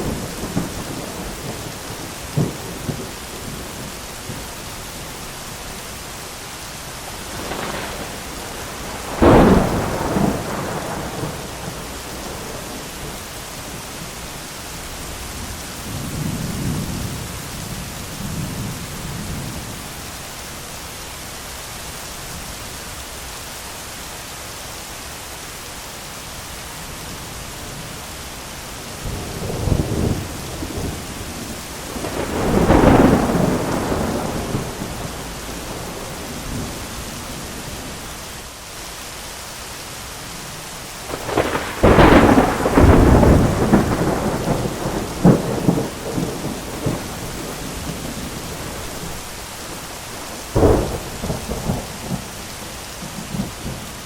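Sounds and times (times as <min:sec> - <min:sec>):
loud thunderclap: 0:00.0 - 0:03.9, 0:07.2 - 0:13.2, 0:29.0 - 0:36.9, 0:41.1 - 0:49.2, 0:50.2 - 0:52.4
rolling thunder: 0:00.0 - 0:04.6, 0:07.1 - 0:14.1, 0:28.9 - 0:38.0, 0:41.0 - 0:54.0
heavy rain: 0:00.0 - 0:54.0.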